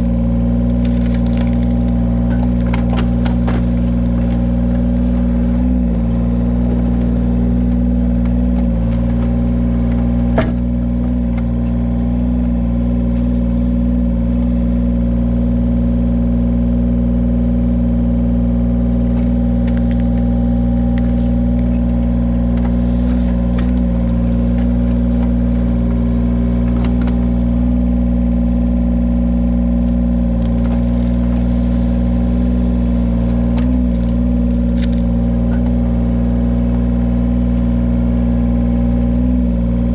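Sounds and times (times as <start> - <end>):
log splitter engine running: 0.0 - 39.9.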